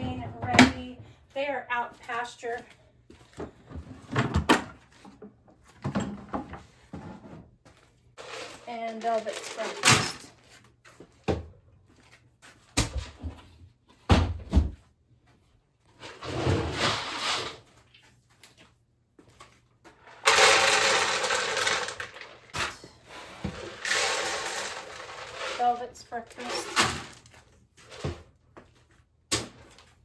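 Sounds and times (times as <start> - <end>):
grain pouring into a bucket: 20.2 - 22.6, 23.4 - 26.6.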